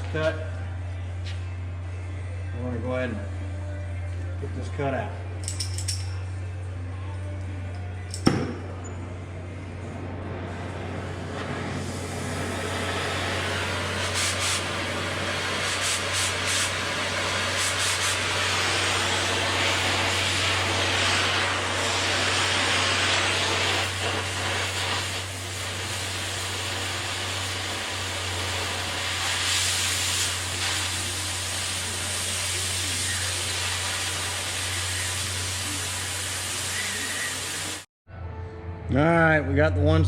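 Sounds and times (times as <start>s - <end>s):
steady low hum: 0.0s - 29.4s
cutting torch hissing: 10.5s - 37.9s.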